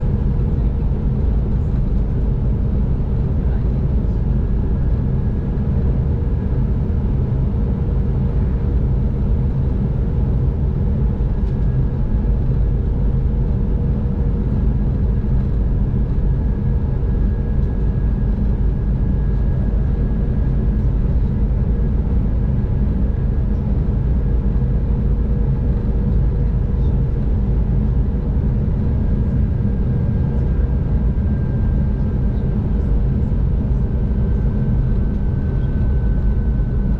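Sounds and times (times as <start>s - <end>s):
train deep rumble: 0.0s - 36.9s.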